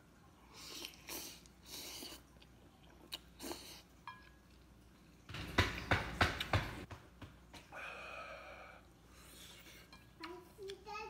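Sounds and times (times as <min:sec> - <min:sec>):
man chewing with smacking: 0:00.5 - 0:05.3.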